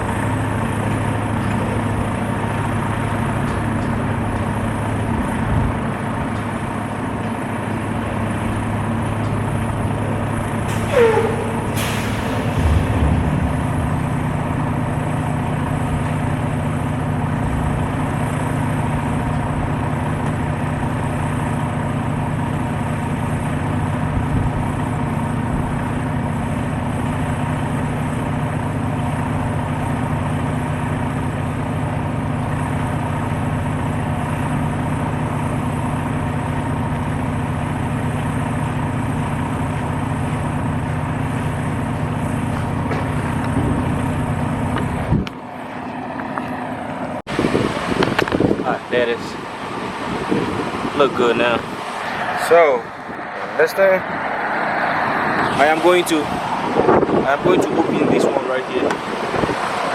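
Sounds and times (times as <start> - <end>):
diesel truck engine idling: 0.0 - 59.9
hiss of released air: 10.7 - 13.0
short falling squeal: 10.7 - 14.0.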